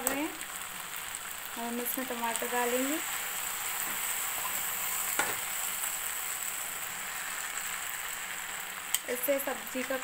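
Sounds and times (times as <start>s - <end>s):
vegetables sizzling in pan: 0.0s - 10.0s.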